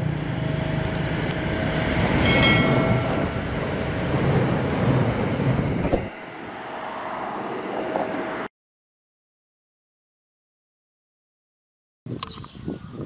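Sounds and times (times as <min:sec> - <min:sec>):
diesel train rumbling past: 0:00.0 - 0:08.5
high-pitched ringing tone: 0:02.2 - 0:03.6.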